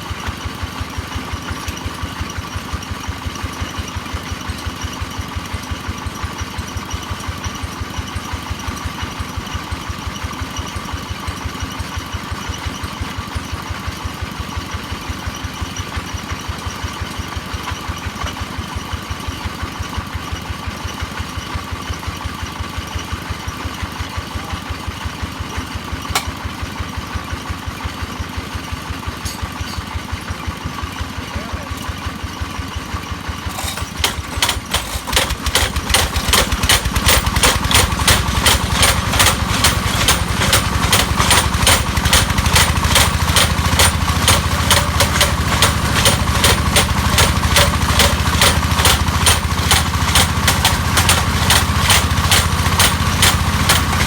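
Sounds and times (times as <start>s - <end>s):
sharp click: 26.1s - 26.3s
hammer drill machine knocking: 33.4s - 54.0s.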